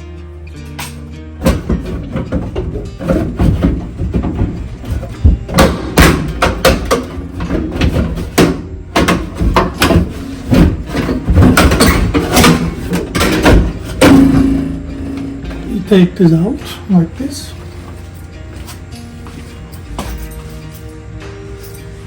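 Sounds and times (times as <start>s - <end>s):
hand tools knocking and prying: 0.8s - 15.8s.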